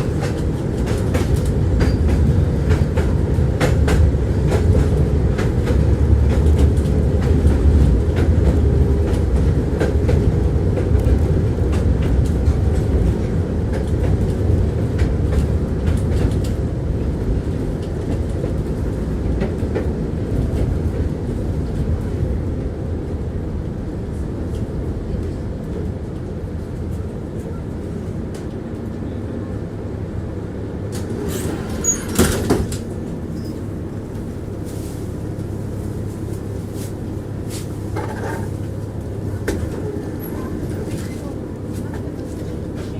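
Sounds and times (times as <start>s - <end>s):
tram clatter: 0.0s - 42.9s
tram rumbling on rails: 0.0s - 42.9s.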